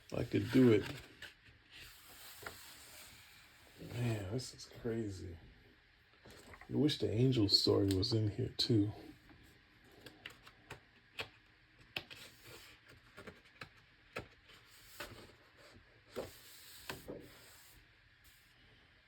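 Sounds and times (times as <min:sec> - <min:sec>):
book pages turning: 0:00.1 - 0:04.2, 0:09.9 - 0:17.8
paper rubbing and swishing: 0:00.2 - 0:04.2.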